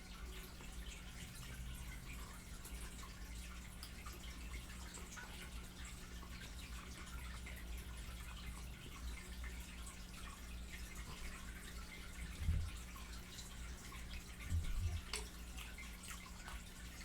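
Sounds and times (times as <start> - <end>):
steady low hum: 10.2 - 17.0.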